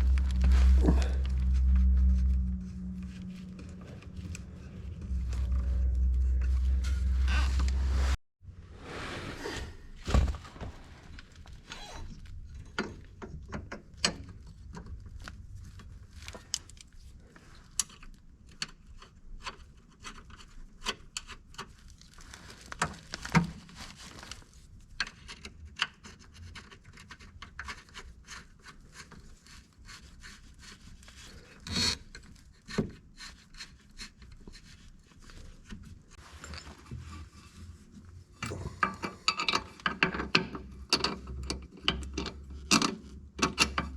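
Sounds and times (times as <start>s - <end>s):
faint low hum: 0.0s - 8.7s.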